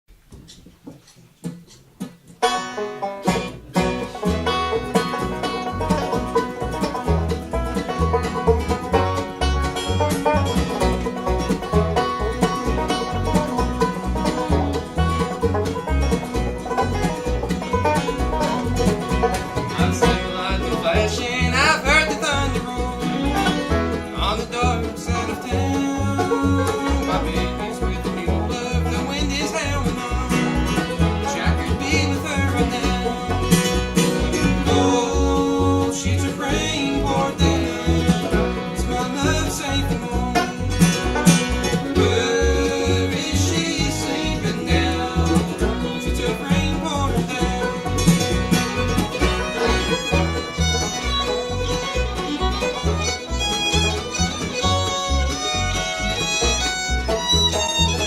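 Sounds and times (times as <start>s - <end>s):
banjo picking: 0.1s - 58.0s
bluegrass band playing: 0.1s - 58.0s
guitar picking: 0.4s - 58.0s.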